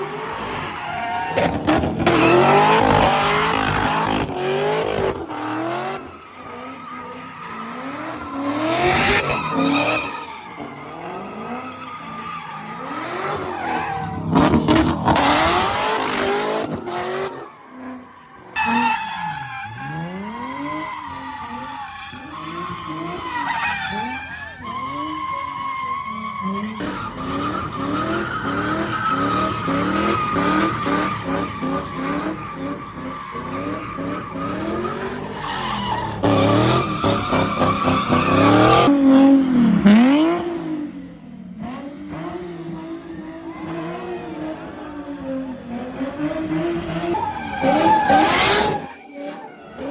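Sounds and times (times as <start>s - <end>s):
car engines revving: 0.0s - 49.9s
tyres squealing: 18.6s - 38.9s.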